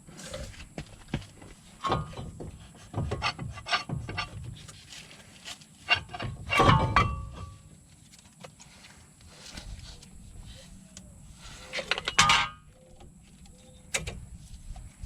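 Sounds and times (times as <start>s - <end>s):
tools and metal parts knocking: 1.8s - 4.4s, 5.9s - 7.6s, 11.8s - 12.7s.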